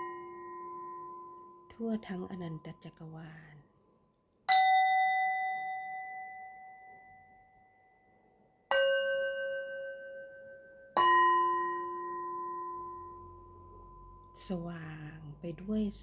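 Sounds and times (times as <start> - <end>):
metal chimes ringing: 8.7 - 14.4.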